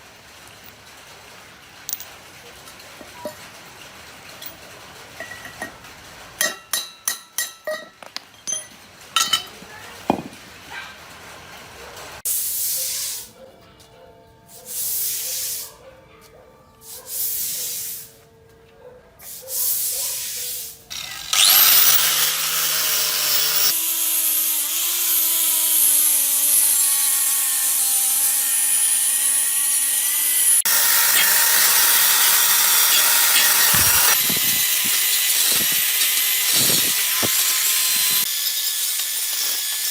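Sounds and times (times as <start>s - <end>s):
hissing bursts: 14.7s - 15.7s, 19.3s - 20.8s
power tool whining: 20.9s - 39.9s.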